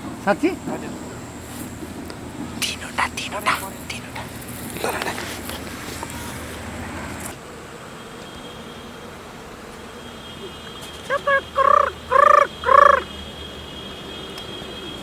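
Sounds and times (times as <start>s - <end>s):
quail calling: 11.1s - 13.1s.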